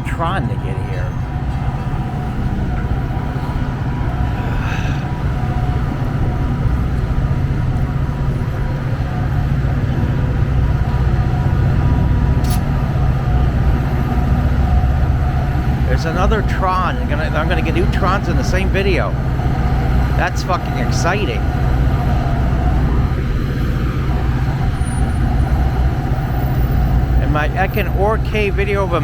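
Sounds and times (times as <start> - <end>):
diesel train engine rumbling: 0.0 - 29.0
sharp click: 12.4 - 12.7.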